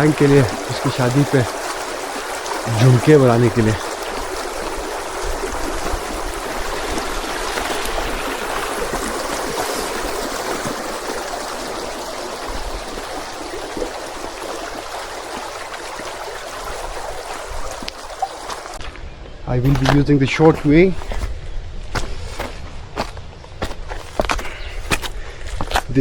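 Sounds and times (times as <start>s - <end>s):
mountain stream flowing: 0.0s - 18.9s.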